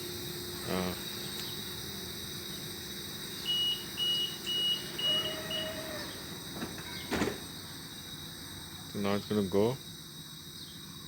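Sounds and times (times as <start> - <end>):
train door warning beeps: 3.4 - 7.4.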